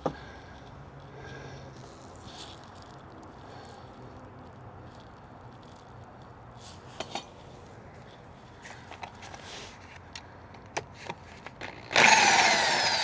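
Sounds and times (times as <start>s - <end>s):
power drill whirring: 11.6s - 13.0s.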